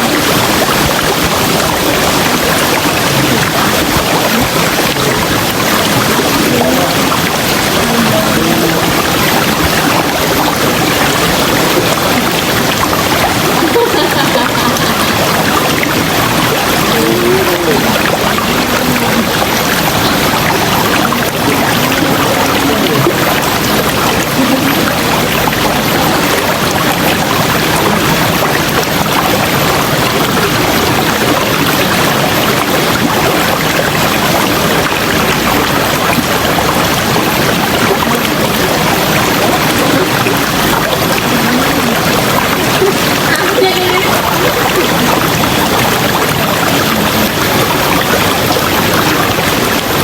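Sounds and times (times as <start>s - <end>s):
river flowing: 0.0s - 50.0s.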